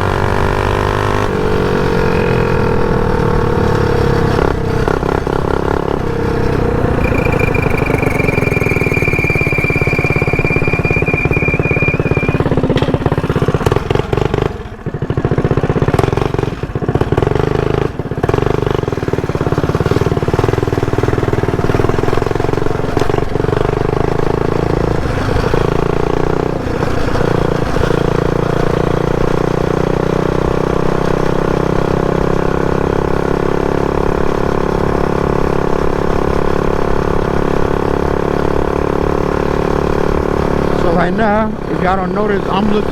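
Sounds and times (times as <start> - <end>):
mini bike engine running: 0.0 - 42.9
thin high steady tone: 7.0 - 12.5.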